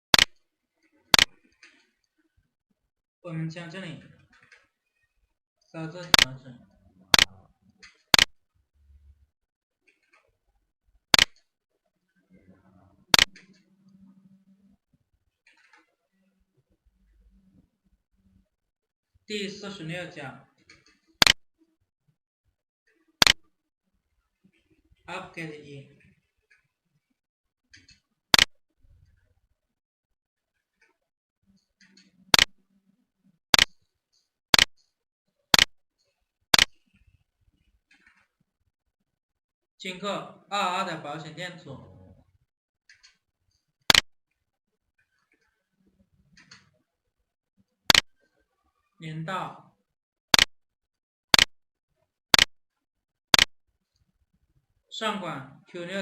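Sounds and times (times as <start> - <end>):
computer mouse clicking: 0.1 - 0.4, 1.1 - 1.8, 6.0 - 6.3, 7.1 - 8.4, 11.1 - 11.4, 13.1 - 13.7, 20.7 - 21.4, 23.2 - 23.4, 27.8 - 28.6, 31.6 - 32.6, 33.6 - 33.8, 34.6 - 34.8, 35.6 - 36.8, 47.9 - 48.2, 51.3 - 51.5.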